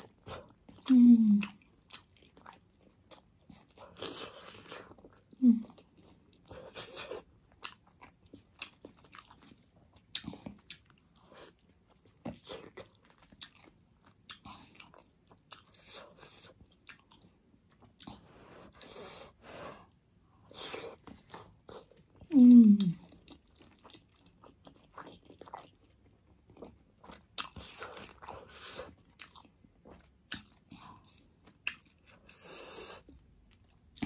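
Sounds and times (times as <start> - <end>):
person chewing wetly: 0.0 - 34.0.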